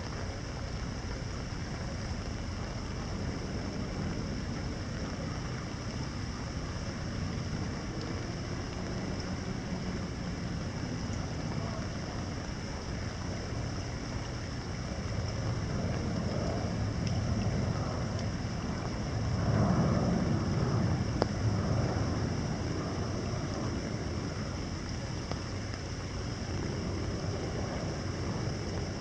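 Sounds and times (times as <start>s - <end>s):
distant city hum: 0.0s - 29.0s
light rain falling into water: 0.0s - 29.0s
low rumble: 0.0s - 29.0s
faint drop ticks: 17.0s - 17.3s, 24.8s - 26.7s.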